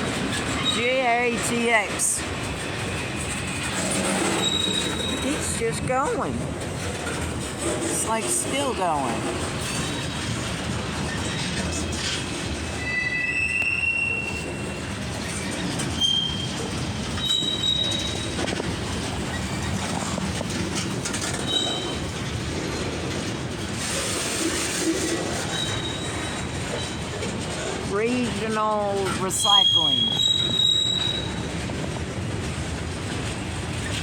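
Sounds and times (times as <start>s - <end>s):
wheel squeals: 0.0s - 1.0s, 2.8s - 5.7s, 11.0s - 22.4s, 23.8s - 31.9s
train wheels rumbling on rail: 0.0s - 34.0s.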